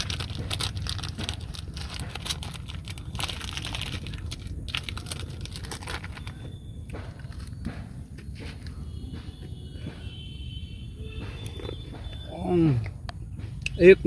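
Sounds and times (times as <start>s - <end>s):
crinkling and rustling: 0.0s - 9.9s
steady low rumble: 0.0s - 14.0s.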